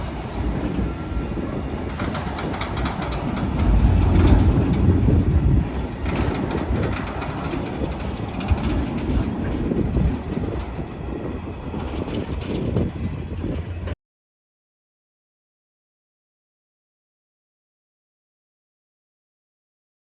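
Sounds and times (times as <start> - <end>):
train wheels clattering on rails: 0.0 - 14.0.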